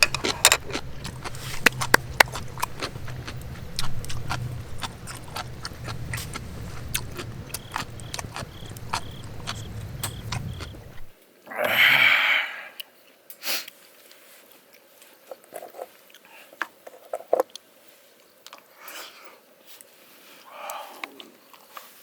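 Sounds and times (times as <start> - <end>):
low hum: 0.0 - 11.1
sharp clicks and ticks: 0.0 - 11.1.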